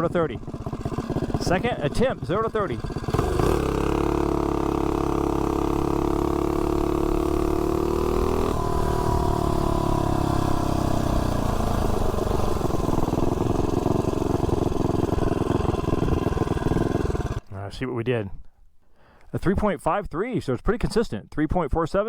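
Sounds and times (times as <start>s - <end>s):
mini bike engine revving: 0.0s - 17.5s.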